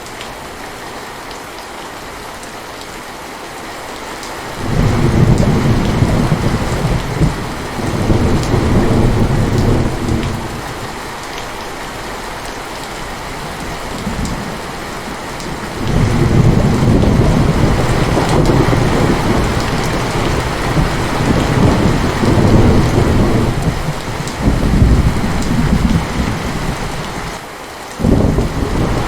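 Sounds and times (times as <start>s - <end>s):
heavy rain falling: 0.0s - 29.0s
rolling thunder rumble: 4.6s - 10.9s, 13.5s - 27.4s, 28.0s - 29.0s.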